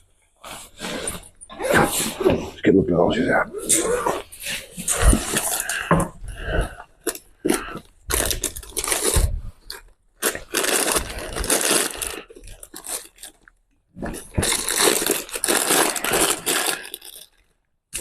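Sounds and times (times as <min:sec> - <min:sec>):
hands rummaging rustling and crunching: 0:03.7 - 0:18.0.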